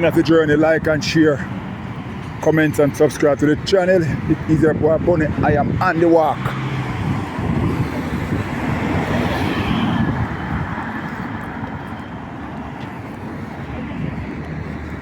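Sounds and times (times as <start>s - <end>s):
rumble of traffic: 0.0s - 15.0s
vehicle passing close by: 6.0s - 15.0s.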